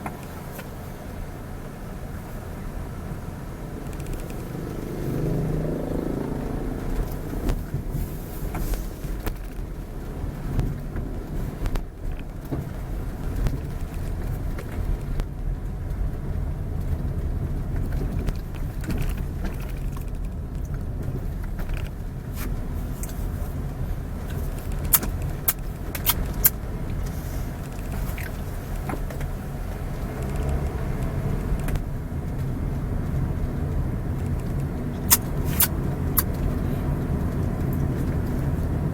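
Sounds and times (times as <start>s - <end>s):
car engine and road noise: 0.0s - 38.9s
sharp clicks: 3.8s - 4.6s.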